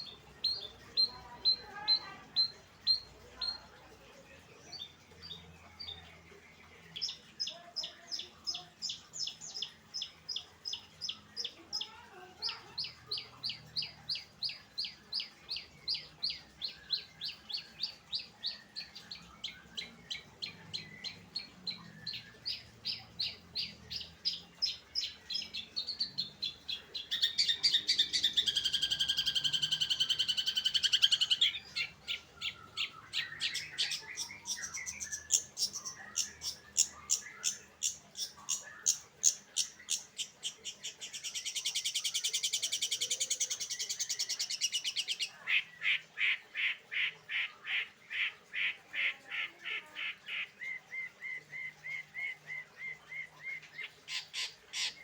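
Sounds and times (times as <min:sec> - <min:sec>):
bird harsh chatter: 0:19.6 - 0:55.0.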